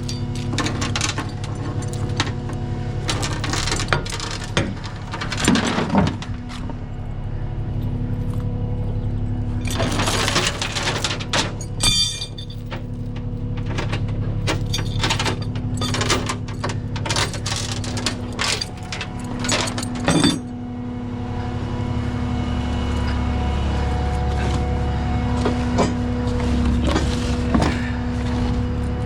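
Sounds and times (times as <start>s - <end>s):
diesel truck engine running: 0.0s - 29.0s
sharp metallic clicks and clanks: 9.6s - 20.5s.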